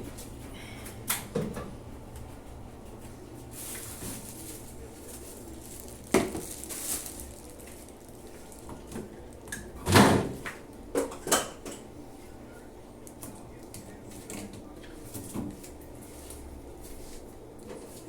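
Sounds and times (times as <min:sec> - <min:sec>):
kitchen items knocking and clattering: 0:01.2 - 0:03.0, 0:03.6 - 0:11.8.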